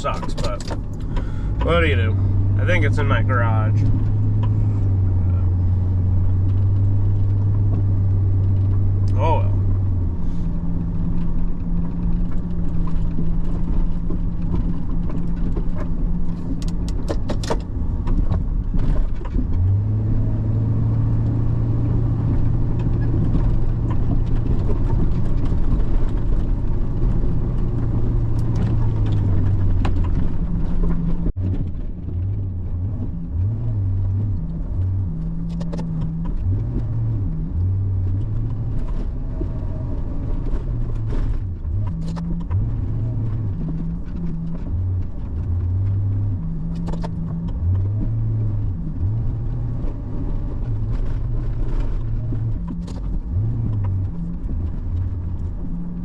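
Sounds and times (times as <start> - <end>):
sharp clicks in cab: 0.0 - 1.8, 11.2 - 19.8
truck engine running under load: 0.0 - 16.9.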